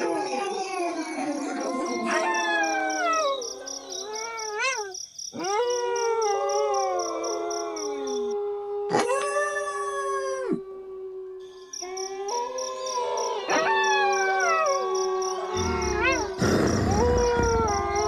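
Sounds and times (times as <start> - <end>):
crickets chirping: 0.0 - 8.4, 11.4 - 18.0
wolves howling: 0.0 - 18.0.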